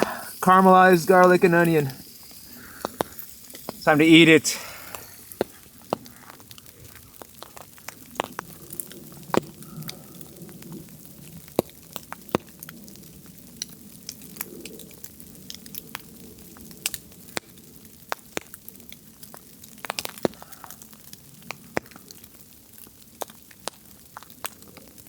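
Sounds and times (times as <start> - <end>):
food sizzling in a pan: 0.0 - 7.7
fire popping and crackling: 0.0 - 25.0.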